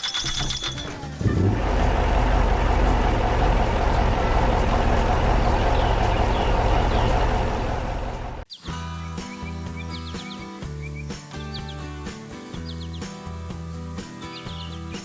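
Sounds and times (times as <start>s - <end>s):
heavy vehicle engine rumbling: 1.0s - 8.5s.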